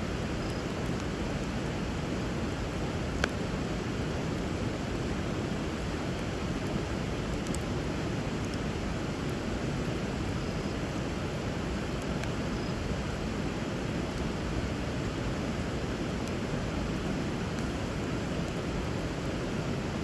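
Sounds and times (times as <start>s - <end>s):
faint pops from burning wood: 2.7s - 3.4s, 5.7s - 10.5s, 17.0s - 19.5s.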